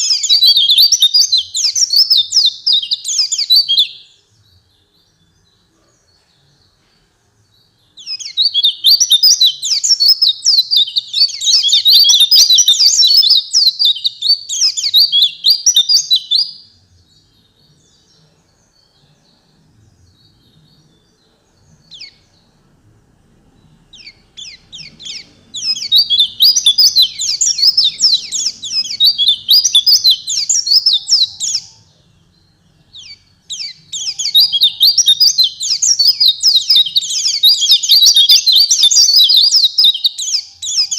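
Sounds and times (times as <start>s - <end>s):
bird rapid chirping song: 0.0s - 40.9s
faint bird calls: 23.6s - 32.2s.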